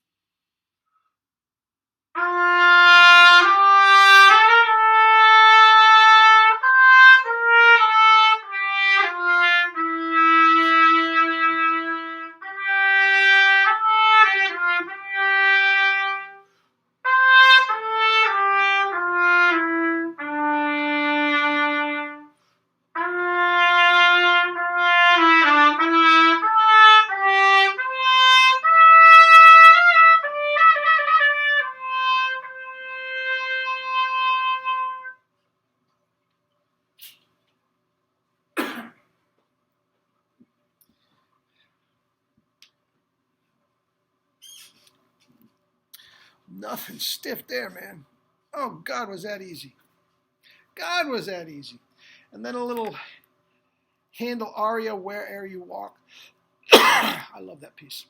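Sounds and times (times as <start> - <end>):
trumpet playing a lyrical melody: 2.2 - 35.3.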